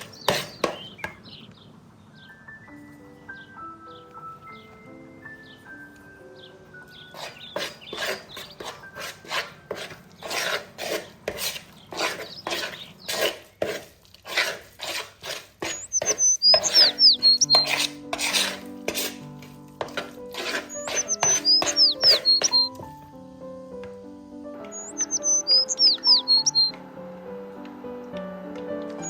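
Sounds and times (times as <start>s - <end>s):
hand mixing scraping in bowl: 0.0s - 0.9s, 6.9s - 22.7s
soft background music: 2.1s - 10.7s, 15.8s - 29.0s.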